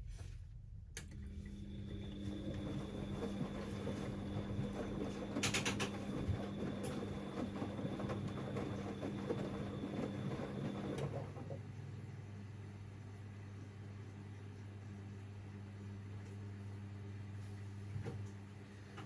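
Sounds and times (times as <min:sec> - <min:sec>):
washing machine motor hum: 0:00.7 - 0:19.0
wet load churning in drum: 0:01.7 - 0:11.6.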